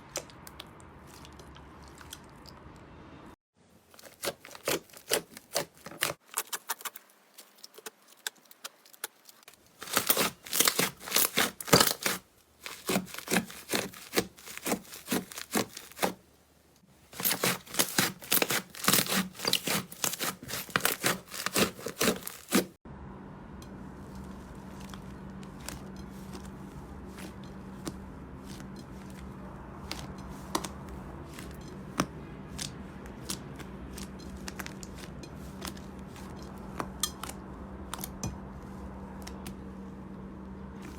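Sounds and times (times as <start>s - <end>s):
slime crackling and popping: 4.0s - 16.1s, 17.1s - 22.7s
steady low hum: 22.2s - 40.9s.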